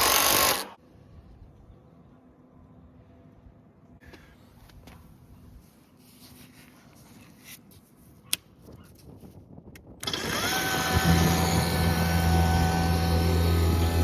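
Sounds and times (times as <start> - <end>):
electric motor whining and humming: 10.0 - 14.0.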